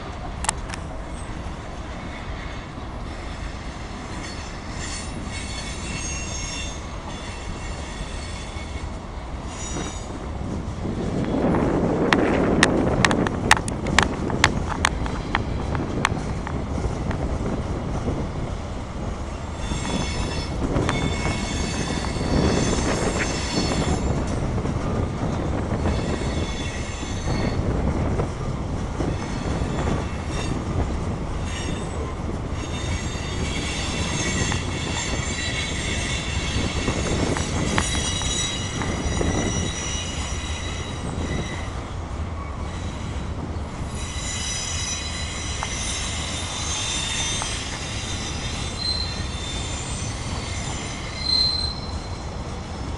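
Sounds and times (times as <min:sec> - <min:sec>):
train wheels rumbling: 0:00.0 - 0:52.9
high-pitched wheel squeal: 0:04.1 - 0:10.2, 0:19.5 - 0:24.2, 0:25.7 - 0:27.6, 0:31.4 - 0:41.8, 0:43.9 - 0:52.4.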